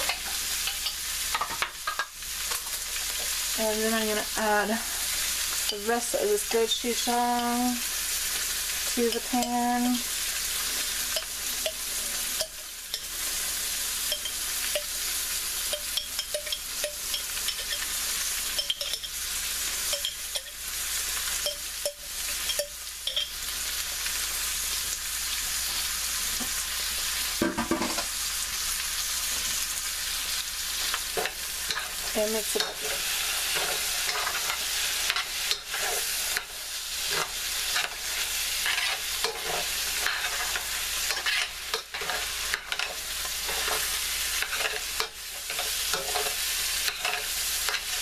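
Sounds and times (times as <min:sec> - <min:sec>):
vegetables sizzling in oil: 0:00.0 - 0:48.0.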